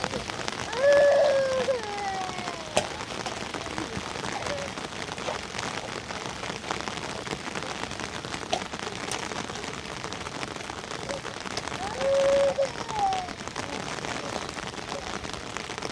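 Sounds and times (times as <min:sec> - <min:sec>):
heavy rain: 0:00.0 - 0:15.9.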